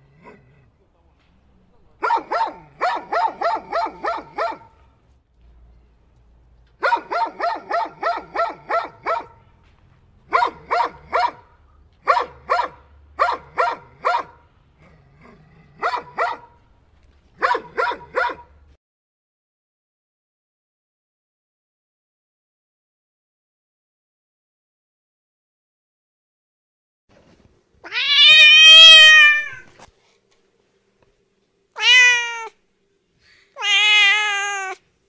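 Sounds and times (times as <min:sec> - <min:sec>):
dog yapping: 0:02.0 - 0:04.8, 0:06.8 - 0:09.4, 0:10.3 - 0:11.4, 0:12.0 - 0:14.4, 0:15.8 - 0:16.5, 0:17.4 - 0:18.5, 0:27.9 - 0:29.6, 0:31.8 - 0:32.5.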